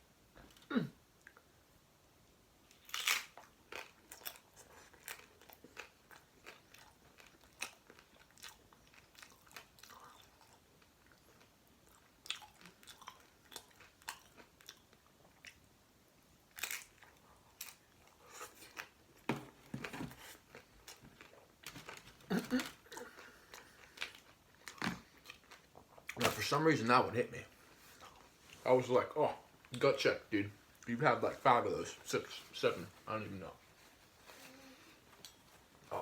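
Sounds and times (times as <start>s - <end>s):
chewing and crunching taco: 2.6s - 19.3s, 19.9s - 26.5s.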